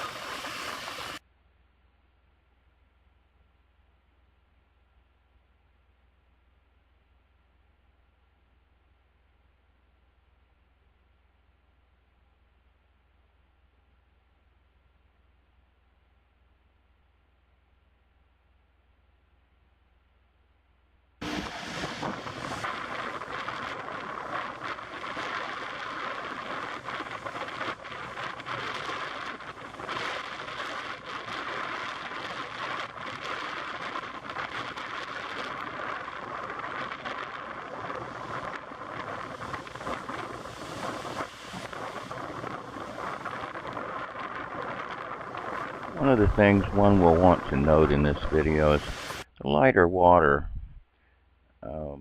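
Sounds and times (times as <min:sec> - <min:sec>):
wind buffeting microphone: 0:21.2 - 0:49.2, 0:50.3 - 0:50.8.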